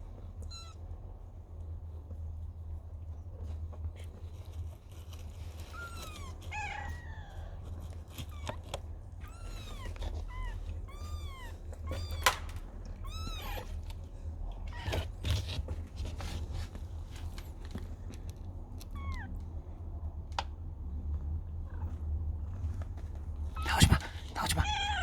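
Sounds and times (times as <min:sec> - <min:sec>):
cat meowing: 0:00.4 - 0:00.8, 0:05.7 - 0:07.6, 0:08.2 - 0:13.9, 0:18.8 - 0:19.4, 0:23.6 - 0:25.0.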